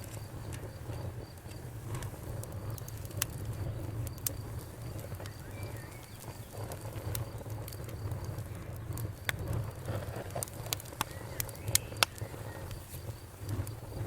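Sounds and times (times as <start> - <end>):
campfire crackling: 0.0 - 14.0
faint chirp: 3.6 - 7.8, 10.8 - 13.8.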